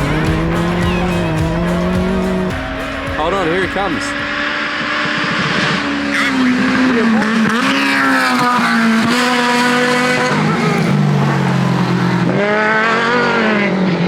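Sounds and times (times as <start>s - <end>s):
race car engine revving: 0.0s - 14.0s.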